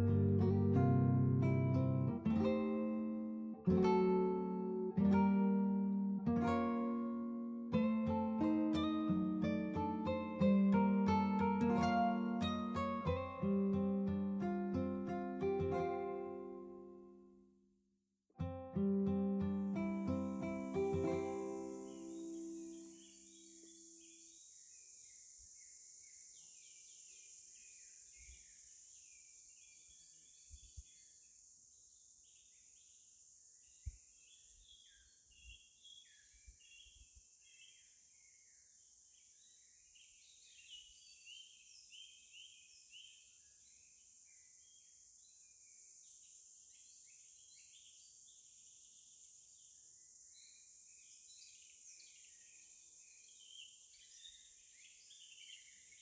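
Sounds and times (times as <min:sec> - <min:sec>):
small birds chirping: 0:00.0 - 0:17.1, 0:18.8 - 0:56.0
steady high hiss: 0:00.0 - 0:35.7.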